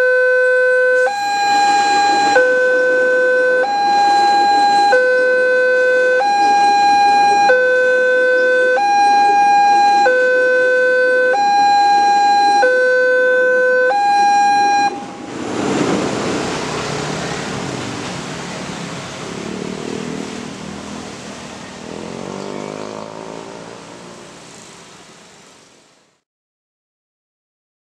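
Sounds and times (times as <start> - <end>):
two-tone level-crossing alarm: 0.0 - 15.5
road traffic noise: 0.0 - 26.2
vehicle engine rising in pitch: 1.0 - 25.0.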